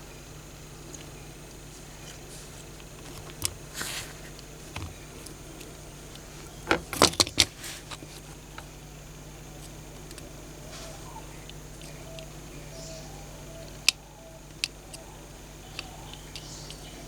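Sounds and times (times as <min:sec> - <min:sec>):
short hiss: 0:03.6 - 0:04.4.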